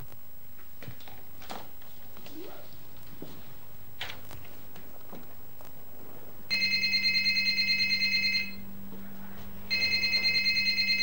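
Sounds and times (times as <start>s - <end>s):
telephone ringing: 6.5s - 8.6s, 9.7s - 11.0s.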